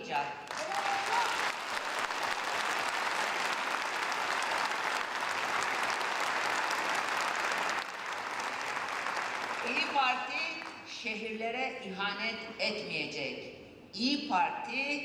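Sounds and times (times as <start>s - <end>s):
audience applauding: 0.5s - 10.9s.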